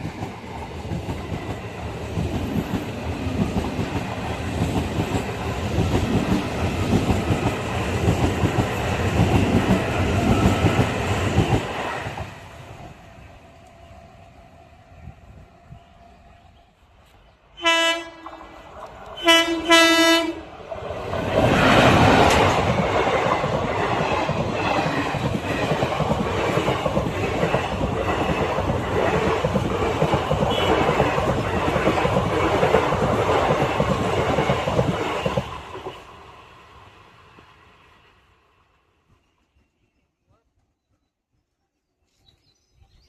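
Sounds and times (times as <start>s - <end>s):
train horn blasts: 17.6s - 18.6s, 19.2s - 20.4s, 30.4s - 31.0s.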